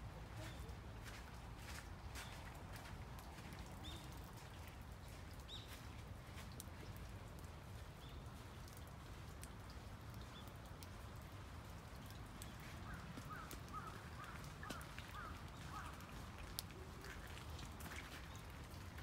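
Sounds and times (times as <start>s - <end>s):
light ticks like drips: 0.1s - 19.0s
small birds chirping: 0.3s - 6.7s, 7.4s - 8.9s, 10.1s - 11.2s.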